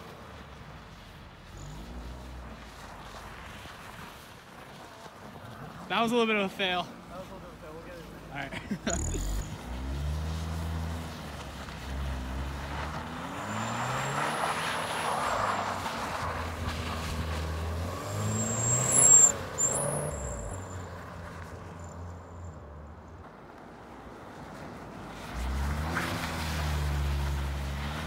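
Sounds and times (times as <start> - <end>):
car engine revving: 8.8 - 20.8.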